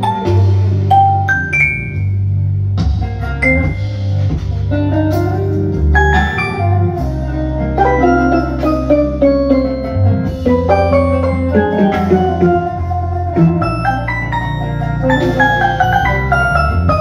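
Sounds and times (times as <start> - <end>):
drums: 0.0 - 17.0
plucked kanun melody: 0.0 - 17.0
sustained bass notes: 0.0 - 17.0
violin: 5.4 - 17.0.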